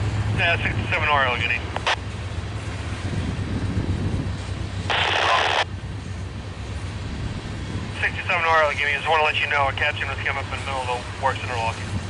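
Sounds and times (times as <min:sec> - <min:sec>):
diesel locomotive rumble: 0:00.0 - 0:12.0
radio scanner hiss: 0:00.4 - 0:02.0, 0:04.9 - 0:05.7, 0:08.0 - 0:11.8.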